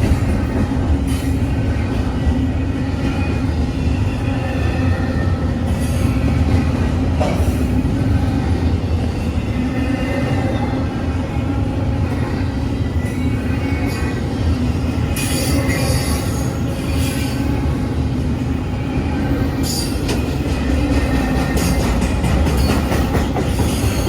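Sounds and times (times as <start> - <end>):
freight train rumbling: 0.0 - 24.0
shrill wheel squeals: 12.1 - 17.9.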